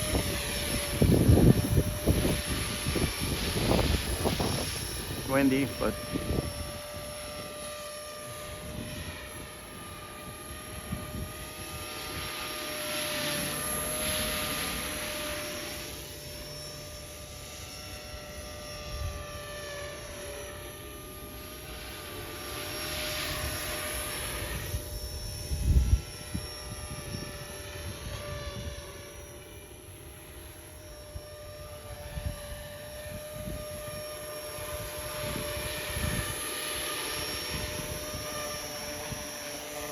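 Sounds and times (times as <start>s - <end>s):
wind buffeting microphone: 0.0s - 7.5s, 34.6s - 36.4s
rc helicopter motor whine: 0.0s - 39.9s.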